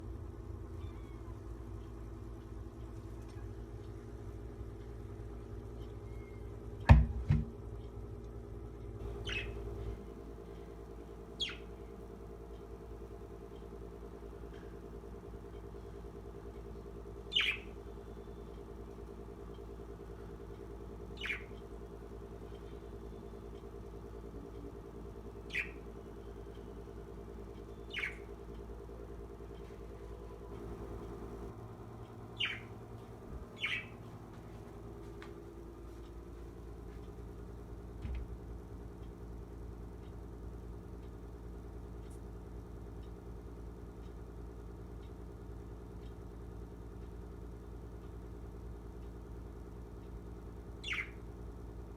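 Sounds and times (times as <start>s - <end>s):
parrot chirping: 9.0s - 10.0s, 11.4s - 12.0s, 17.1s - 18.4s, 21.0s - 21.8s, 24.5s - 28.8s, 32.2s - 32.8s, 33.4s - 34.1s, 50.8s - 51.3s.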